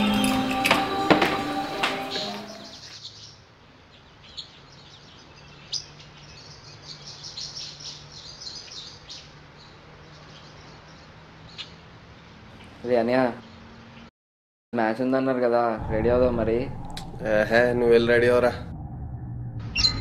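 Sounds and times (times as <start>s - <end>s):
small birds chirping: 2.0s - 14.1s.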